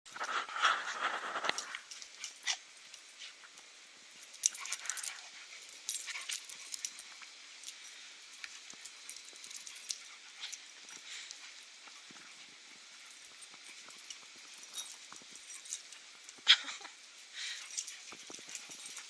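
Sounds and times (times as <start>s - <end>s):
puppies scuffling: 0.1s - 3.6s, 4.2s - 19.0s.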